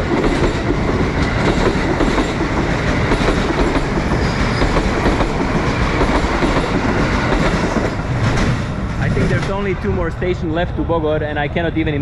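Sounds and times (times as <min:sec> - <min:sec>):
wheels clicking over rail joints: 0:00.0 - 0:11.1
train rumbling: 0:00.0 - 0:12.0.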